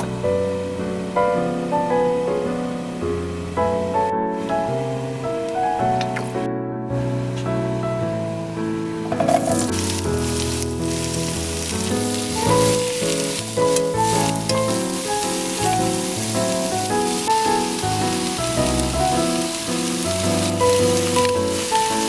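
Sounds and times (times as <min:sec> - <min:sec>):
gentle solo piano tune: 0:00.0 - 0:22.0
food sizzling in a pan: 0:09.2 - 0:22.0.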